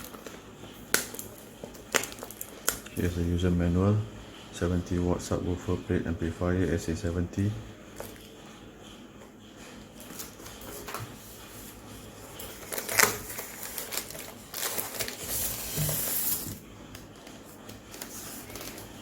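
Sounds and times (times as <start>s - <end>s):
cardboard rustling and scraping: 10.0s - 19.0s.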